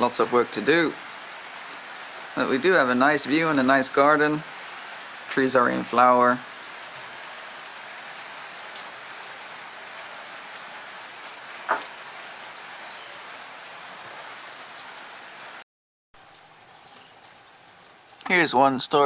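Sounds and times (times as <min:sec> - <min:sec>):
steady rain falling: 0:00.0 - 0:15.6, 0:16.2 - 0:19.0.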